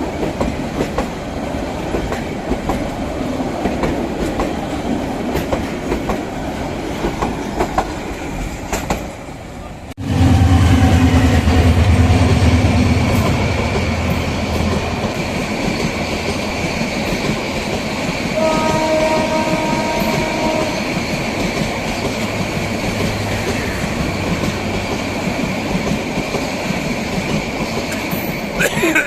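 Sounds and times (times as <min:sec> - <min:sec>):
carriages clattering on rails: 0:00.0 - 0:09.4, 0:10.3 - 0:29.0
train horn: 0:10.0 - 0:14.6, 0:18.4 - 0:21.2
locomotive engine drone: 0:10.0 - 0:16.6.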